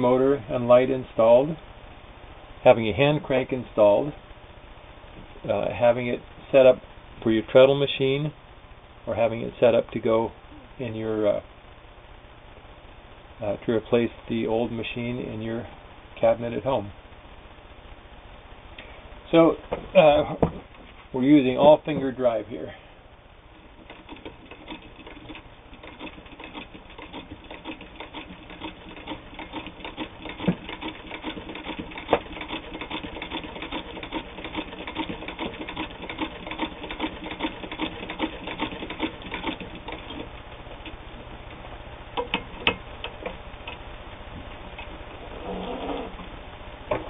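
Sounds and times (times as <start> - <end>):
sewing machine clicking: 23.7 - 41.0.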